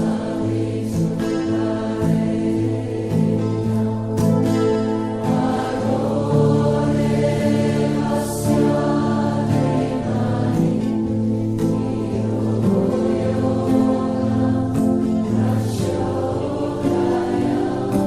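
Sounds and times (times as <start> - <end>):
sustained drone tones: 0.0 - 18.0
voices chanting long notes: 0.0 - 18.0.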